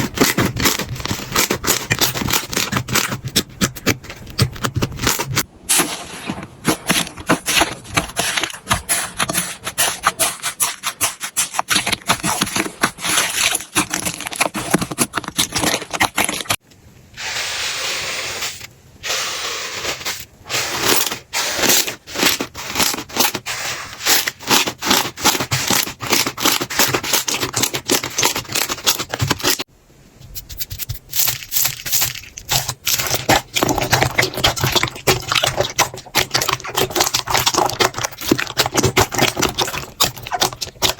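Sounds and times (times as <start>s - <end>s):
slime squishing: 0.0s - 16.6s, 19.7s - 40.9s
slime crackling and popping: 30.5s - 40.9s.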